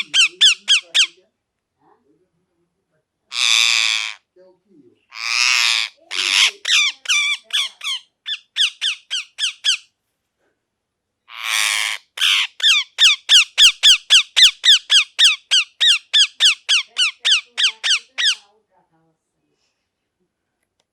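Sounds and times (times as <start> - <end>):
parrot harsh screech: 0.0 - 1.1, 3.3 - 4.2, 5.1 - 9.8, 11.3 - 18.4
parrot calling: 0.0 - 1.2, 3.3 - 4.2, 5.1 - 9.9, 11.3 - 18.5.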